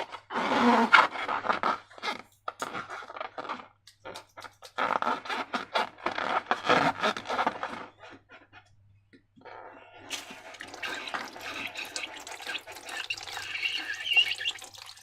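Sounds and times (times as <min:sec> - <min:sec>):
slime squelching by hand: 0:09.4 - 0:15.0.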